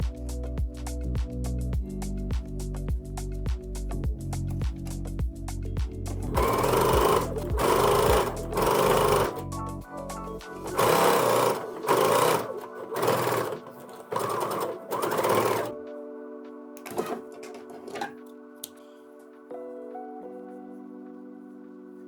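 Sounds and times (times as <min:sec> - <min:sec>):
background music: 0:00.0 - 0:22.0
sewing machine stitching: 0:06.2 - 0:09.5, 0:10.6 - 0:15.8, 0:16.9 - 0:18.2.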